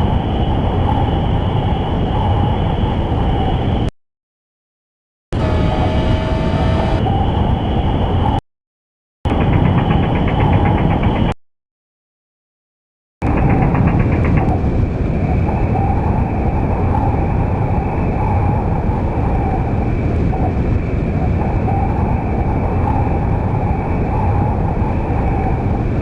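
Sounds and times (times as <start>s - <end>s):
loud rumbling noise: 5.3s - 8.4s, 9.3s - 11.4s, 13.2s - 26.0s.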